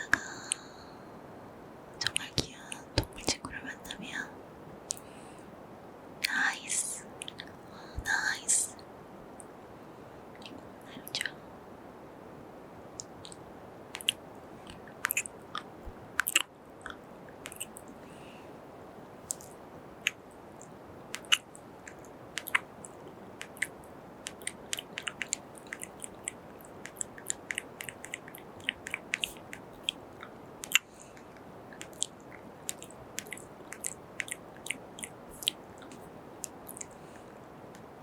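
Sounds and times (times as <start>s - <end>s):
faint hiss: 0.0s - 38.0s
kiss and mouth sounds: 14.0s - 17.9s, 21.1s - 22.7s.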